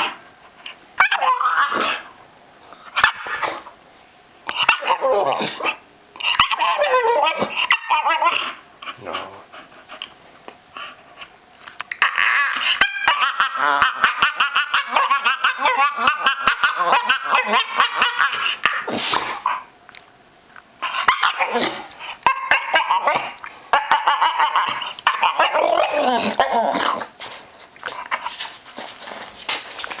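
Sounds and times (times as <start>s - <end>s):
dog yipping: 1.0s - 2.0s, 6.2s - 8.6s
dog whining and grumbling: 4.5s - 9.6s, 20.8s - 28.3s.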